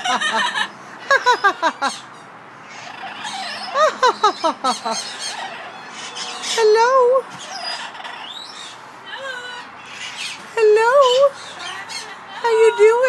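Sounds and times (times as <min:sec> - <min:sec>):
pet bird chirping: 0:02.7 - 0:08.8.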